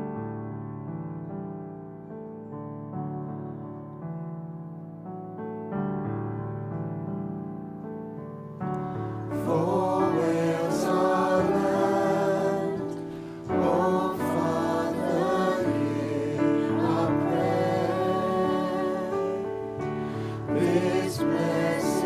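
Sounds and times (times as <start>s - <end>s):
voices singing: 9.3s - 22.0s.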